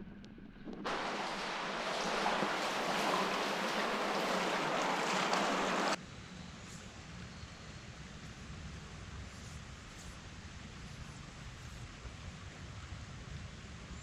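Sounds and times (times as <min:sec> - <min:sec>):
rushing river water: 0:00.9 - 0:06.0.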